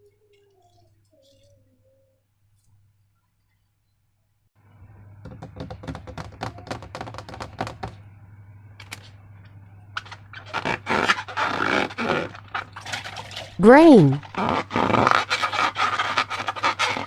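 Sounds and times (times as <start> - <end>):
low steady hum: 8.0 - 10.5.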